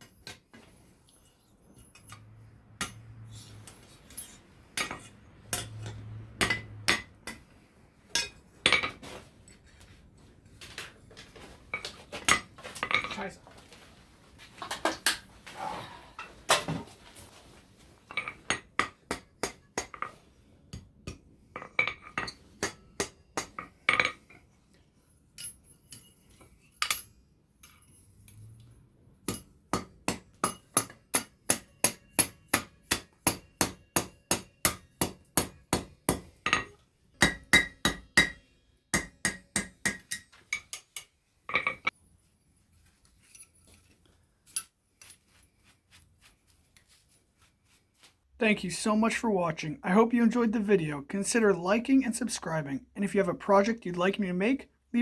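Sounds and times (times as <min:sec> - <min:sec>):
hammer striking steel on anvil: 0:02.8 - 0:03.2, 0:04.1 - 0:07.5, 0:08.1 - 0:09.0, 0:18.2 - 0:20.1, 0:20.7 - 0:24.2, 0:29.2 - 0:41.9.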